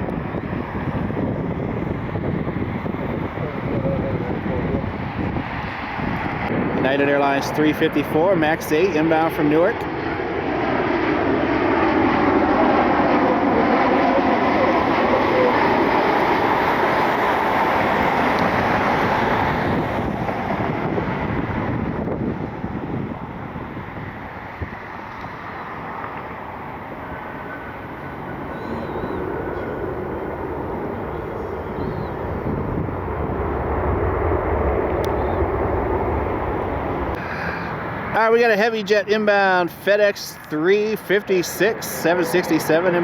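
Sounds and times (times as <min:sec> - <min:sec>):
jet engines rushing: 0:00.0 - 0:43.0
low rumble: 0:11.0 - 0:37.2.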